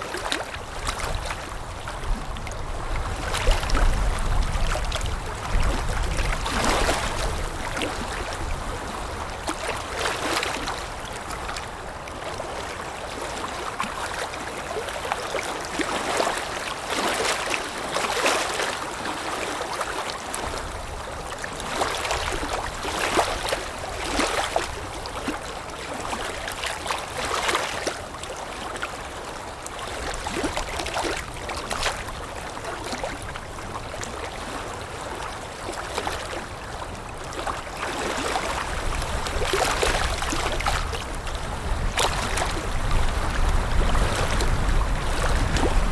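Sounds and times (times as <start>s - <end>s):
water lapping: 0.0s - 45.9s
low wind rumble: 38.6s - 45.9s.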